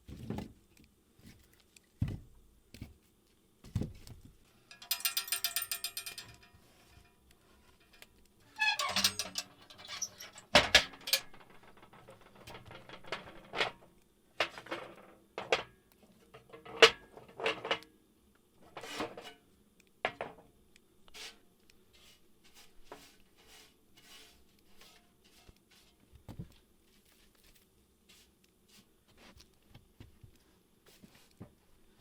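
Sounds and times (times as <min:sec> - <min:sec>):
cooking gear knocking and clinking: 0:04.6 - 0:17.8.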